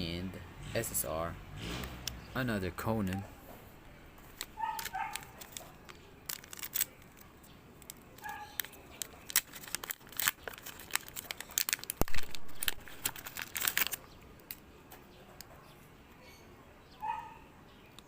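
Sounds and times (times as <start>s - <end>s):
foil wrapper tearing and crinkling: 4.3s - 14.6s.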